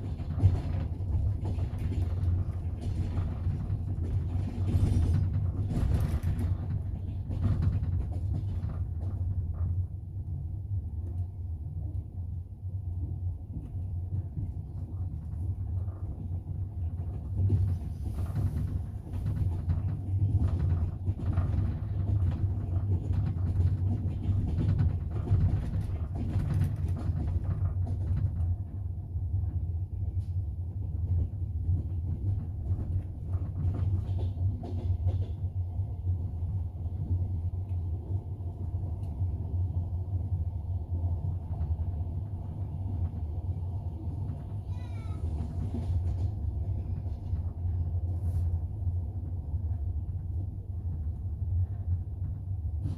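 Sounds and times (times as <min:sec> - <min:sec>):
wheels clattering over track: 0:00.0 - 0:09.9, 0:14.1 - 0:28.8
train rumble inside carriage: 0:00.0 - 0:52.9.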